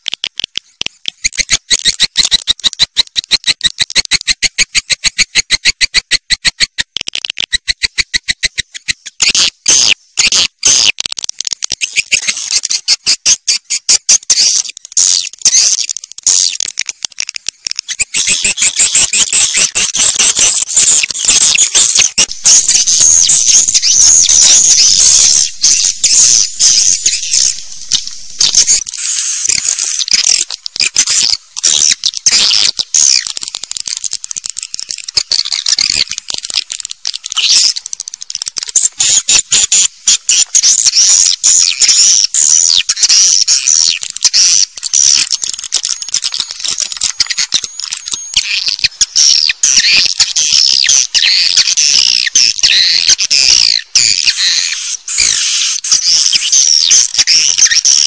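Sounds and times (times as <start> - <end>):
swiftlets twittering: 11.8 - 58.0.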